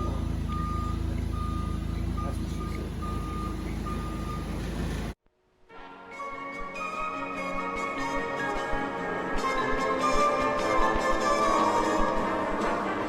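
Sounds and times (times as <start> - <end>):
reversing alarm beeping: 0.0 - 4.6
vehicle engine running: 0.0 - 5.2
music: 5.3 - 13.0.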